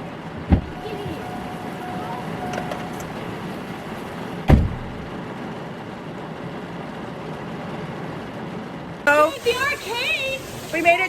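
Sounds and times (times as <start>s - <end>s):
heavy rain on a car: 0.0s - 11.0s
car door slam: 0.4s - 1.2s, 4.4s - 5.1s
faint steady tone: 0.6s - 5.1s.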